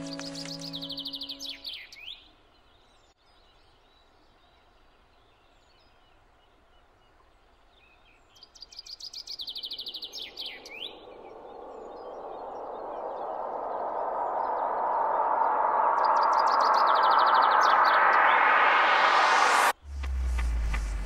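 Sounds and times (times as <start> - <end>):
songbird trilled phrase: 0.0 - 2.1
faint bird chirps: 0.0 - 18.8
steady rushing noise: 10.2 - 21.0.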